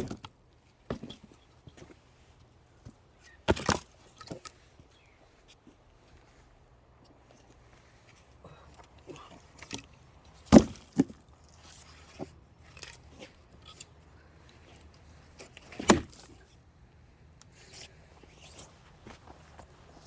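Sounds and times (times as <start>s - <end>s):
axe splitting firewood: 3.4s - 4.5s, 10.5s - 11.2s, 15.5s - 16.4s.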